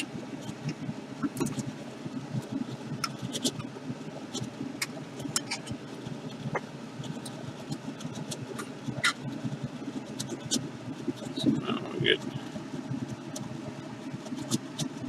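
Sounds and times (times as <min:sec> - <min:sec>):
exhaust fan rumble: 0:00.0 - 0:15.0.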